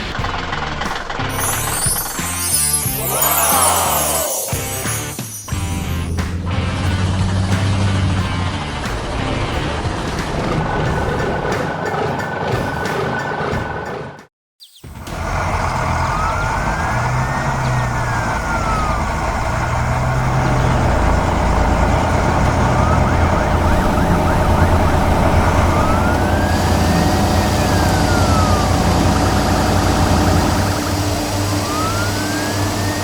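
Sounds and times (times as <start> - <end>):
truck engine rumble: 0.0 - 12.6, 15.0 - 33.0
siren wailing: 1.3 - 6.2, 15.1 - 33.0.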